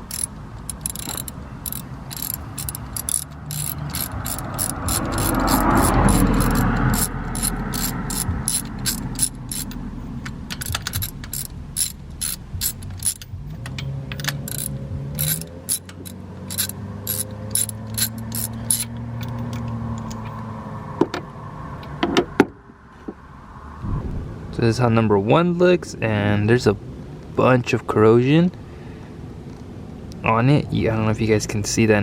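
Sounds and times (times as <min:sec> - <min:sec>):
low steady hum: 0:00.0 - 0:16.6, 0:23.3 - 0:27.4
ratchet wrench clicking: 0:00.0 - 0:20.2.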